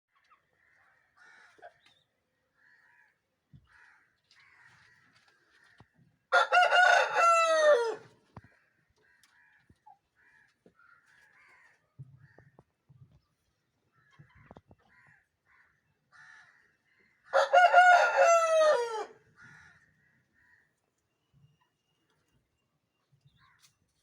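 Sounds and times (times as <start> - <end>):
rooster crowing: 6.3 - 8.1, 17.3 - 19.2.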